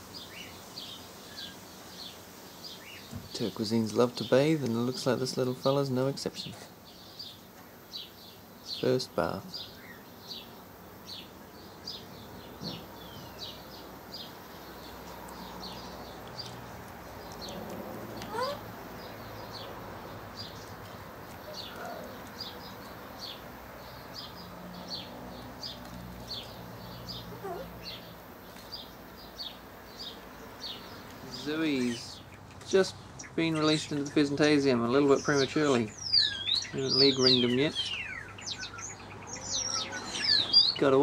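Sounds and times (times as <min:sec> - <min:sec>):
small bird chirping: 0:00.0 - 0:41.0.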